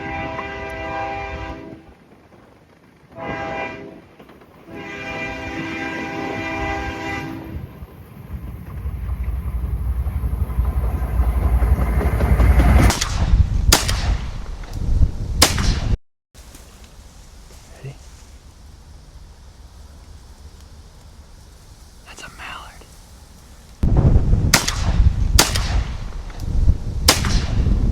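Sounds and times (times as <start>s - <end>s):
train horn blasts: 0.0s - 2.0s, 3.1s - 7.8s
train rumbling past: 0.0s - 13.7s
sharp cracks: 12.8s - 14.8s, 15.4s - 16.0s, 23.8s - 27.9s.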